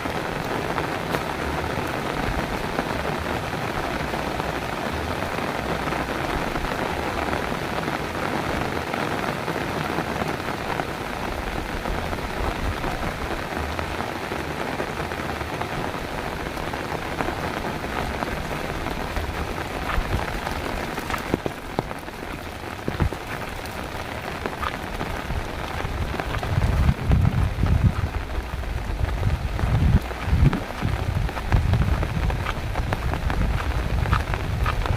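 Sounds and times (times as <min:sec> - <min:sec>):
heavy rain: 0:00.0 - 0:34.9
raindrop knocks: 0:17.8 - 0:34.9.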